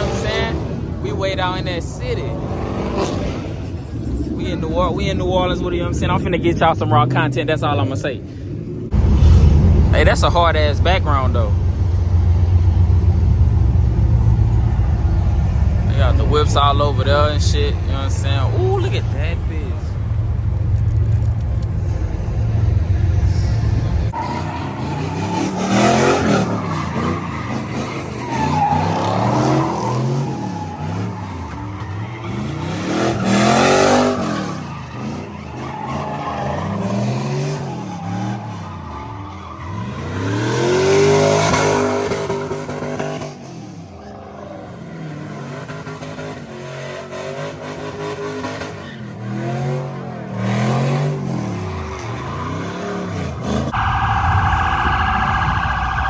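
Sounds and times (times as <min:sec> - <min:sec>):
tires squealing: 0:00.0 - 0:08.4, 0:09.0 - 0:56.0
car engines revving: 0:00.0 - 0:56.0
steady siren-like tone: 0:52.8 - 0:56.0.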